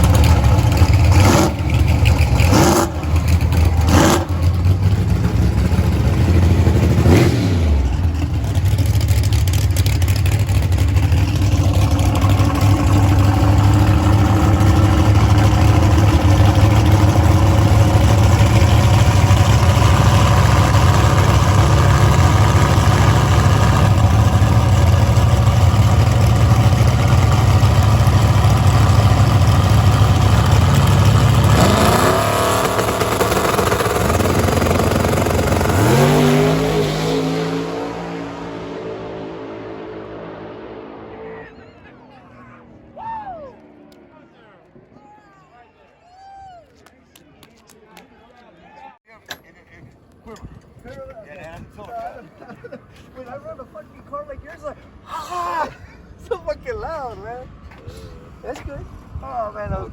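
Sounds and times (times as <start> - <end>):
race vehicle engine running: 0.0 - 43.0.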